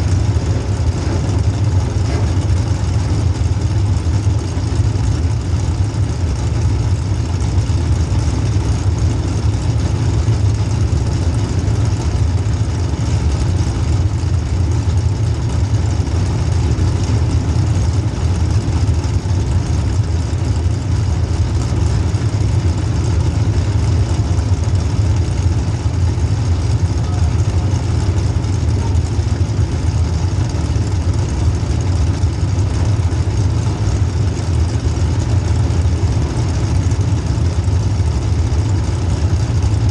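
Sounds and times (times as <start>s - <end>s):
car engine running at low revs: 0.0s - 39.9s.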